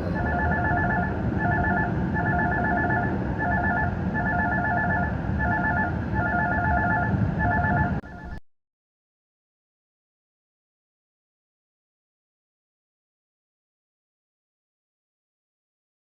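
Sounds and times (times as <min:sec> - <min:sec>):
phone ringing with electronic beeps: 0:00.0 - 0:08.4.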